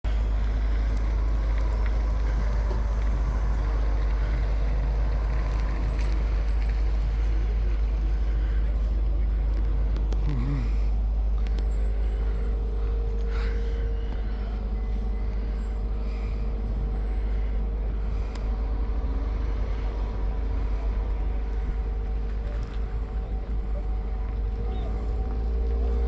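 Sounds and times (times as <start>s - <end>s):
fire engine rumbling: 0.0s - 26.0s
thin steady whine: 0.1s - 25.8s.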